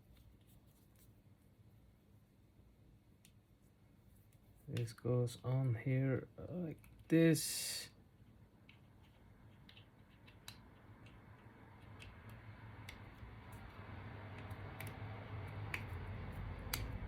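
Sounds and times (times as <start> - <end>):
low steady hum: 0.0 - 17.0
small plastic parts clicking: 8.6 - 16.0.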